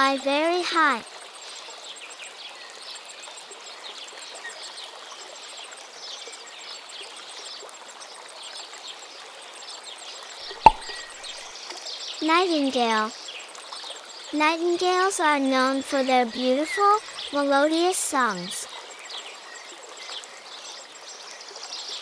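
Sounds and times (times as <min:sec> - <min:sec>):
sharp click: 0:10.5 - 0:11.4
faint bird chirps: 0:10.5 - 0:11.5.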